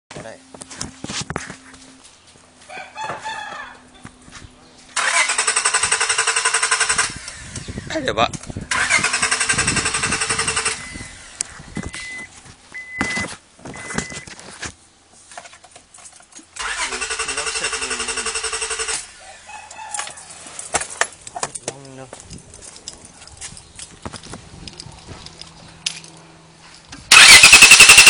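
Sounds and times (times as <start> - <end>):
car engine cranking: 5.0 - 7.7, 8.4 - 12.2, 16.5 - 19.2, 27.1 - 28.0
short high beeps: 11.8 - 14.2.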